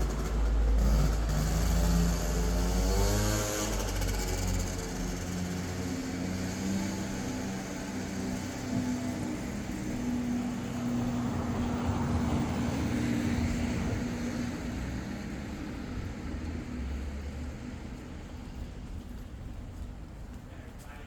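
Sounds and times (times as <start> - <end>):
motor vehicle passing by: 0.0 - 18.8.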